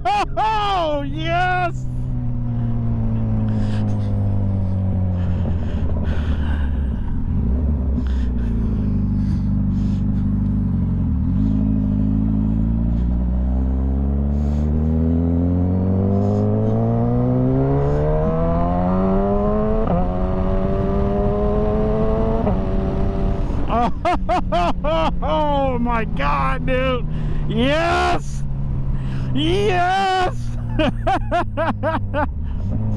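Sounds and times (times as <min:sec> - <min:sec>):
motorcycle engine revving: 0:01.8 - 0:23.8, 0:30.5 - 0:32.9.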